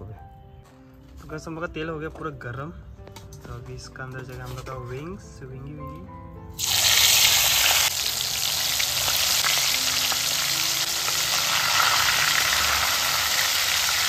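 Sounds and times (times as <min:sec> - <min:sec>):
chicken sizzling in hot oil: 0:06.6 - 0:14.0.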